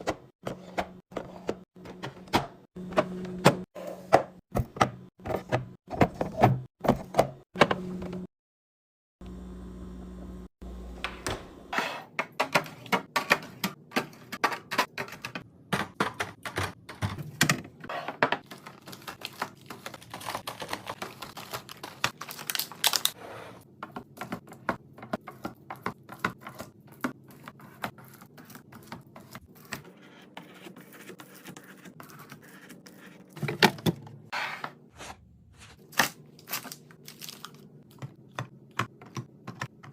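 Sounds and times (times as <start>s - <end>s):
plastic containers clicking and tapping: 12.2s - 22.1s, 37.9s - 39.9s.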